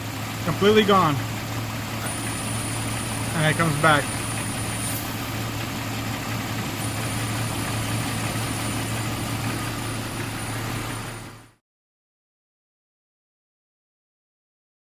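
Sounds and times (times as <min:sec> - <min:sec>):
car engine idling: 0:00.0 - 0:11.6.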